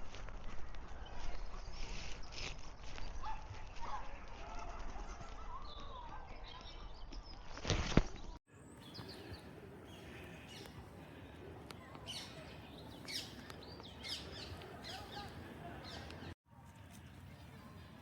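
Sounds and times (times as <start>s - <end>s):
small birds chirping: 5.1s - 16.4s.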